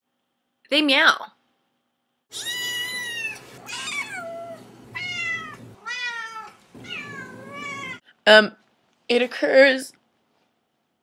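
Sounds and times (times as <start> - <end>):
cat meowing: 2.3 - 8.0.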